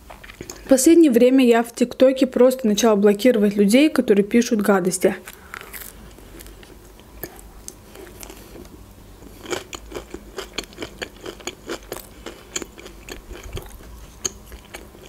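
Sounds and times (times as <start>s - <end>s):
person chewing food: 0.1s - 0.7s, 5.3s - 15.0s.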